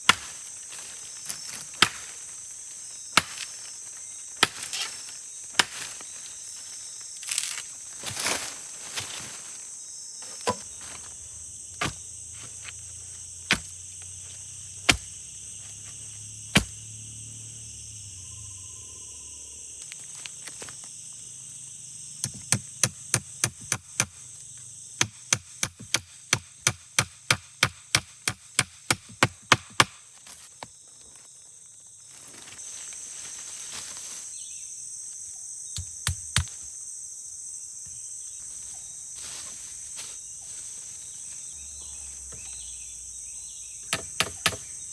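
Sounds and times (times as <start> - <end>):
forest insects droning: 0.0 - 44.9
tool striking wood: 10.4 - 10.7, 11.8 - 12.0, 13.4 - 13.8, 14.8 - 15.2, 16.5 - 16.9, 22.2 - 24.2, 25.0 - 30.0, 43.9 - 44.8.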